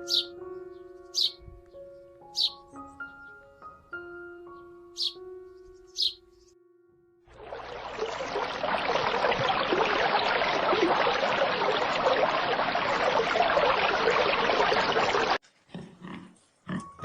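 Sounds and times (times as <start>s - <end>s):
running water splashing: 7.3s - 15.4s.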